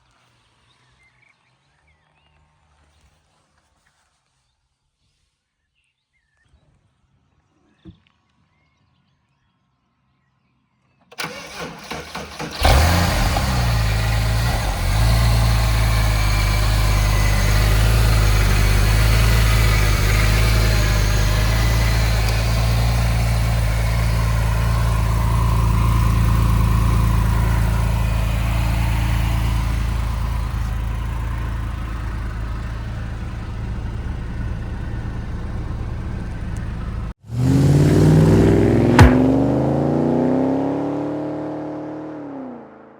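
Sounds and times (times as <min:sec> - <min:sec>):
engine starter cranking: 0:11.1 - 0:37.1
car engine idling: 0:11.2 - 0:40.0
car engine revving: 0:11.2 - 0:42.2.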